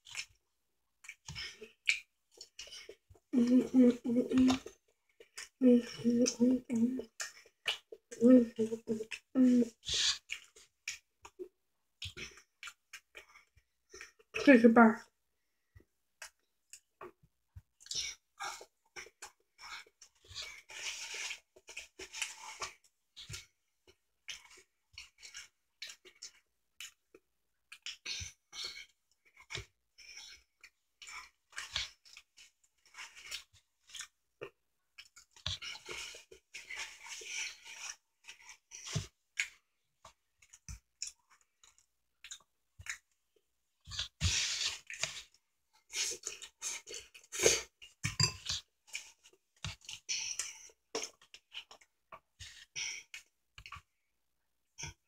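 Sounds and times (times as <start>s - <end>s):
person chewing food: 0.0s - 0.4s, 1.0s - 14.4s, 15.5s - 54.1s.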